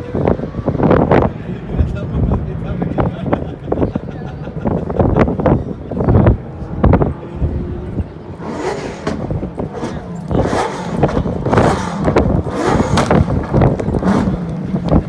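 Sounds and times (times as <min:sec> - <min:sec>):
rally car engine revving: 0:06.8 - 0:15.0.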